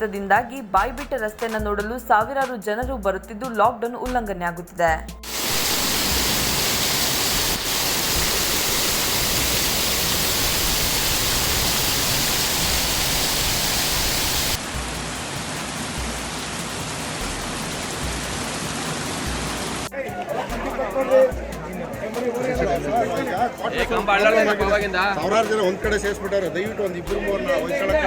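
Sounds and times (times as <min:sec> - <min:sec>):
heavy rain falling: 0:05.2 - 0:19.9.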